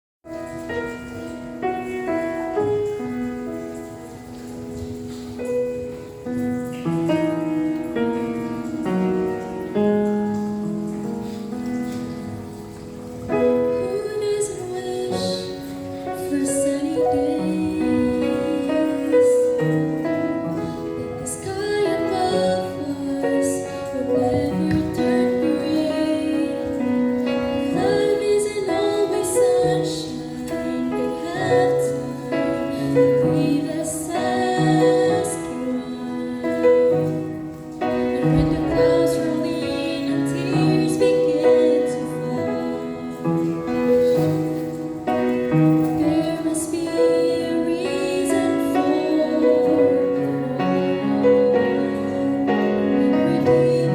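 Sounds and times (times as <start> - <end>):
piano accompaniment: 0.2 - 53.9
woman singing gospel song: 13.7 - 19.6, 20.7 - 37.1, 38.0 - 44.2, 45.8 - 53.9.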